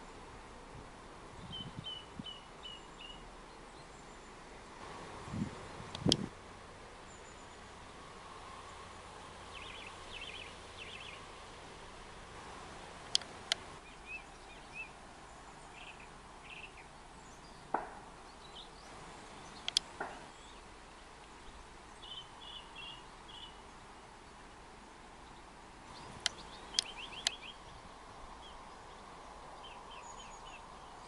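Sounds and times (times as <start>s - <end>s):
small birds calling: 7.0s - 11.4s, 13.1s - 31.0s
sharp high clicks: 19.6s - 19.9s.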